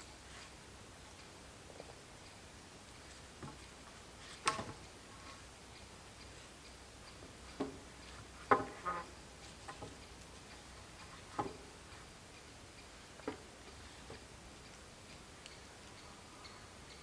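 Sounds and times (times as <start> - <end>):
light knocks and clicks: 11.0 - 11.7.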